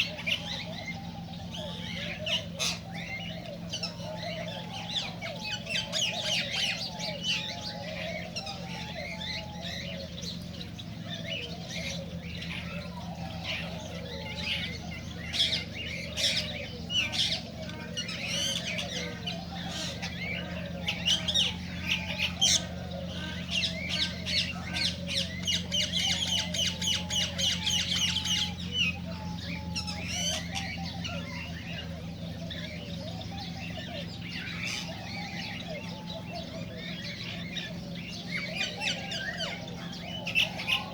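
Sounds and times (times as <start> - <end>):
cockatiels chirping: 0.0 - 40.9.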